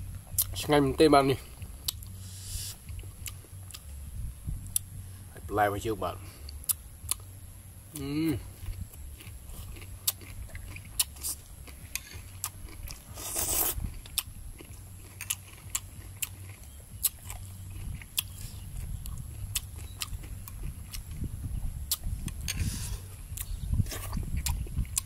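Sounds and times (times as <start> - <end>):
chewing crunchy salad: 1.8 - 4.0, 6.5 - 7.3, 8.0 - 25.0.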